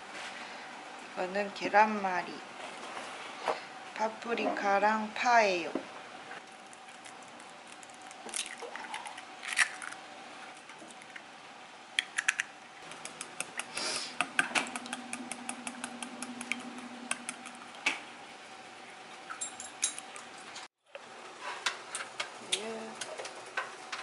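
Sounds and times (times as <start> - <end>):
faint steady hum: 0.1 - 24.0
eggs cracking on a bowl: 6.4 - 11.2, 12.0 - 17.8
utensil beating eggs in bowl: 12.8 - 17.8.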